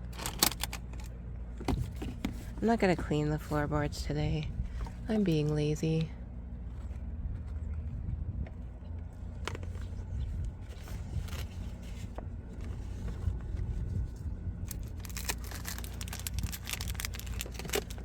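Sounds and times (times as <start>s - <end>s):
steady low rumble: 0.0s - 18.0s
items clicking and scraping: 14.7s - 18.0s.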